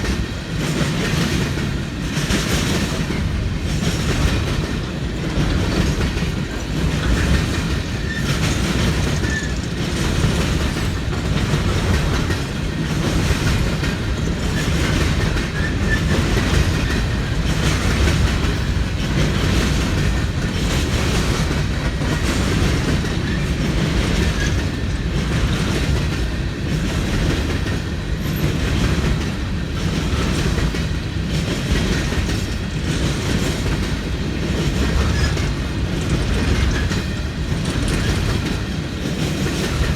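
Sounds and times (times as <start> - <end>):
train wheels clattering over rails: 0.0 - 39.9.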